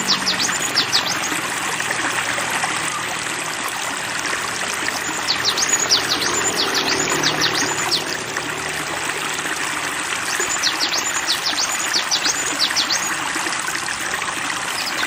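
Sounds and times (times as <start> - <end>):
water rushing like a stream: 0.0 - 15.0
songbird chirping: 4.8 - 8.2.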